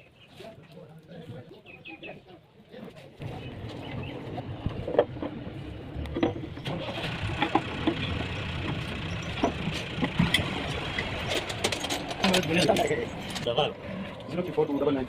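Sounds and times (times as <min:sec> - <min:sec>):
diesel truck engine running: 0:03.2 - 0:15.0.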